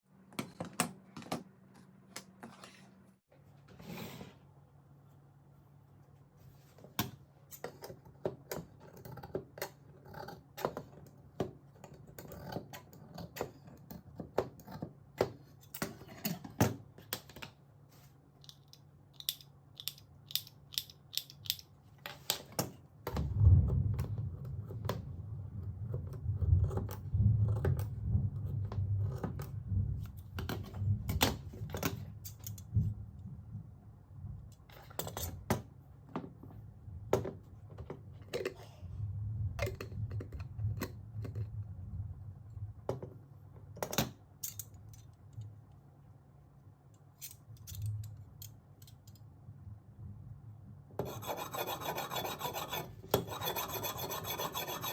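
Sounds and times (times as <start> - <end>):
low rumbling handling noise: 23.0 - 34.6.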